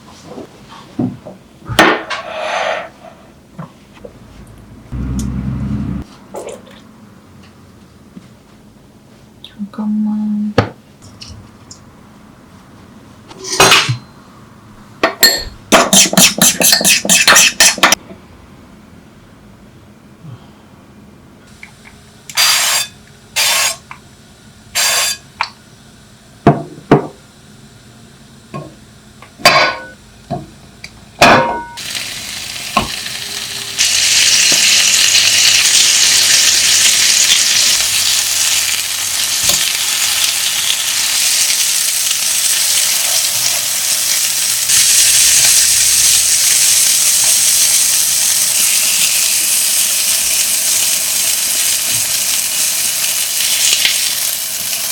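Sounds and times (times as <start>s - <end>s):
food sizzling in a hot pan: 22.4s - 23.9s, 24.8s - 25.3s, 31.6s - 54.9s.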